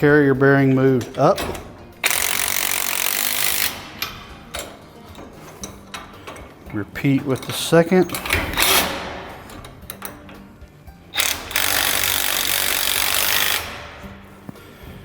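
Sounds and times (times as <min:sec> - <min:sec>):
impact driver running: 0:02.0 - 0:03.9, 0:11.2 - 0:14.0.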